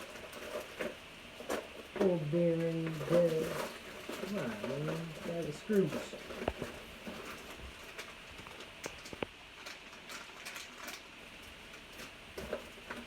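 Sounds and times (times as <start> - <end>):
plastic bags rustling: 0.0 - 13.0
small parts clicking and rattling: 0.0 - 13.0.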